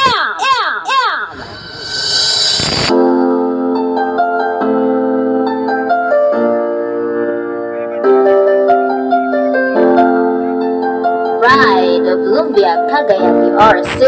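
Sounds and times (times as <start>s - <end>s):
electric piano chords and melody: 2.9s - 13.6s.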